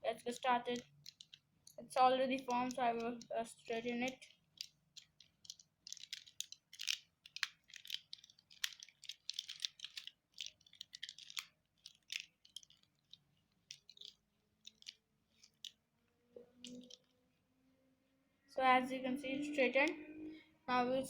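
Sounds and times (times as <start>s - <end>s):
plastic puzzle clicking and rattling: 0.0s - 15.8s, 16.5s - 17.1s.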